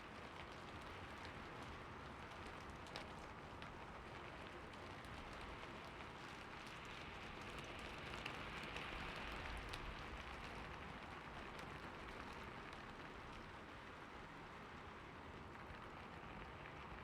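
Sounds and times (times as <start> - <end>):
rain on hard surfaces: 0.0 - 17.0.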